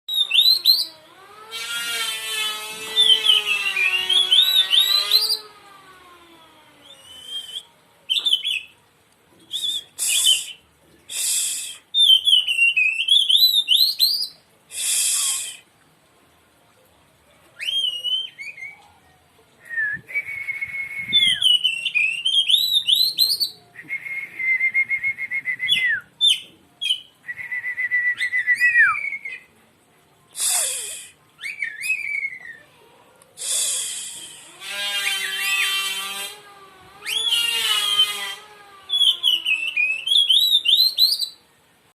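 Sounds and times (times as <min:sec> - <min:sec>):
bird singing whistled phrases: 0:00.1 - 0:01.0, 0:03.0 - 0:05.5, 0:06.8 - 0:08.8, 0:09.4 - 0:10.6, 0:11.2 - 0:15.6, 0:17.6 - 0:18.9, 0:19.7 - 0:29.5, 0:30.4 - 0:32.6, 0:37.0 - 0:38.2, 0:38.9 - 0:41.4.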